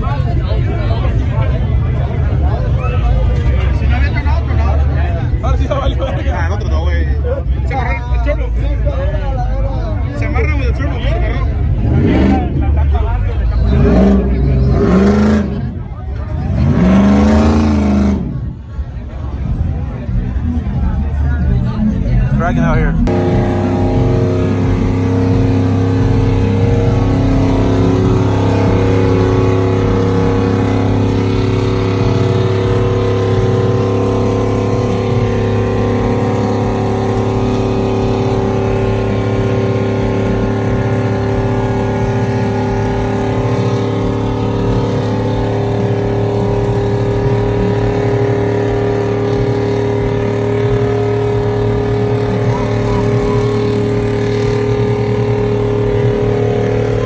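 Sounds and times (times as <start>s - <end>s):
truck engine droning steadily: 0.0s - 57.0s.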